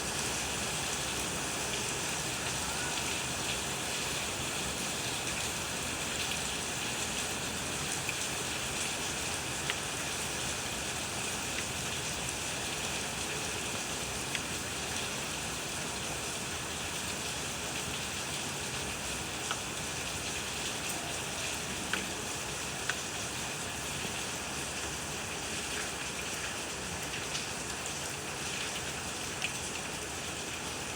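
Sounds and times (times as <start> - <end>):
steady rain hiss: 0.0 - 30.9
raindrops ticking on a surface: 0.2 - 30.9.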